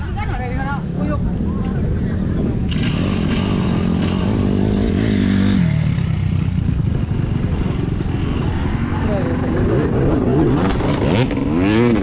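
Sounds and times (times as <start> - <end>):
dirt bike engine revving: 2.6 - 12.0.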